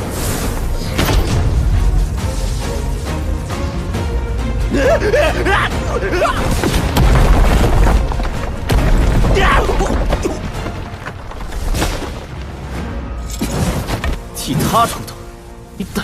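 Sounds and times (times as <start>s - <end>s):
dramatic soundtrack music: 0.0s - 16.0s
heavy booms and crashing impacts: 6.6s - 10.6s.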